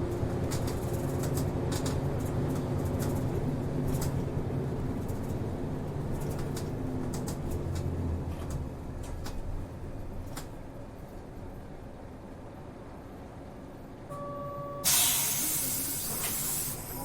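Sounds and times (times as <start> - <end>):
bus body rattling: 0.0 - 13.3
diesel engine hum: 0.0 - 17.0.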